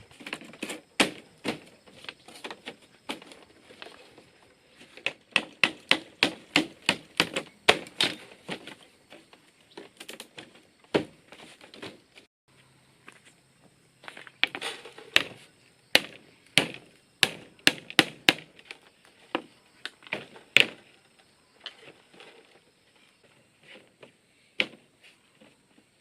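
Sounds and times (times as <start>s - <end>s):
tool knocking on bamboo: 5.0s - 8.2s, 16.0s - 18.6s.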